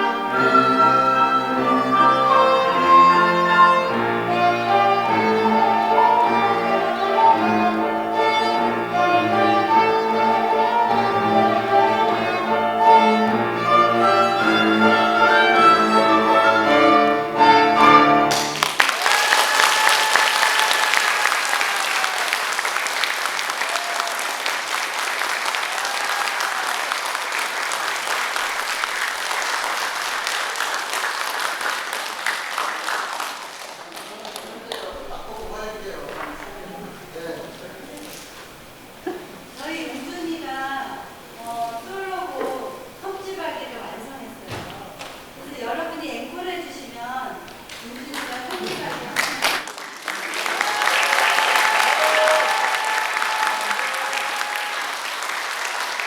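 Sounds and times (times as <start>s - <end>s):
violin and cello playing: 0.0s - 18.6s
audience applause: 18.3s - 38.2s, 47.4s - 56.0s.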